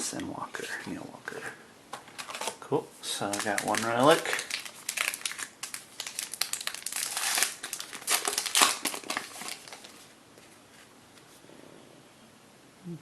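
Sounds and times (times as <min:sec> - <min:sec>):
foil wrapper crinkling: 0:02.1 - 0:10.1.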